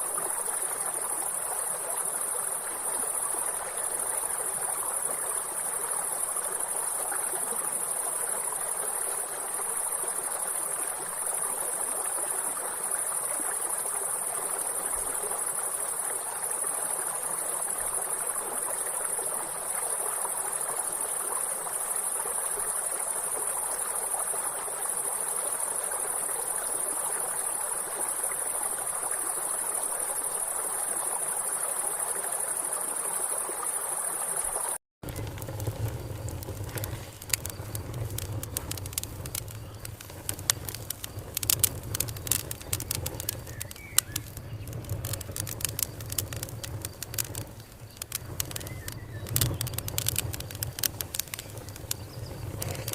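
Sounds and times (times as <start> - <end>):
insects chorus: 0.0 - 52.9
stream rushing: 33.9 - 52.9.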